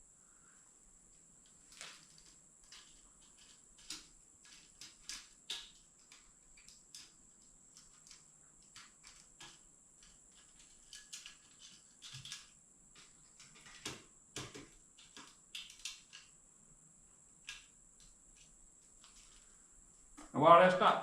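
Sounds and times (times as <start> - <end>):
metal parts clicking and tapping: 1.7 - 16.3.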